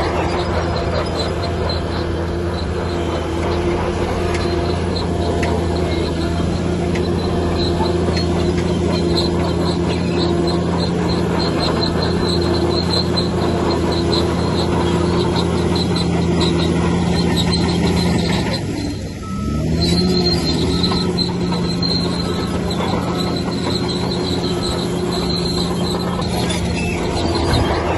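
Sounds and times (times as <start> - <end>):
bulldozer diesel engine running: 0.0 - 27.9
crawler tracks squealing: 0.0 - 27.9.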